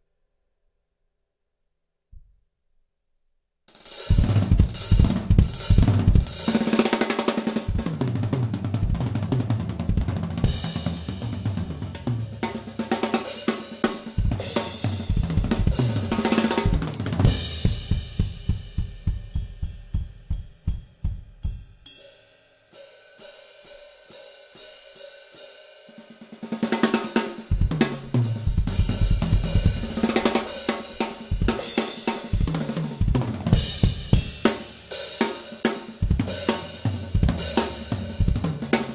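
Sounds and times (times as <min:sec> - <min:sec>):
drum kit playing: 0:03.7 - 0:22.0, 0:26.2 - 0:38.9
bass drum: 0:04.1 - 0:06.6, 0:07.7 - 0:12.6, 0:14.2 - 0:21.8, 0:27.5 - 0:31.7, 0:32.3 - 0:34.6, 0:36.0 - 0:38.8
snare drum: 0:04.1 - 0:21.2
cymbals: 0:10.4 - 0:38.9.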